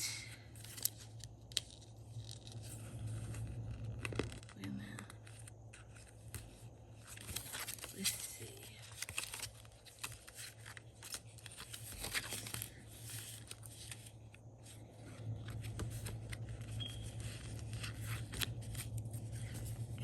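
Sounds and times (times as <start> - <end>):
steady low hum: 0.0 - 20.0
paper rustling: 5.2 - 20.0.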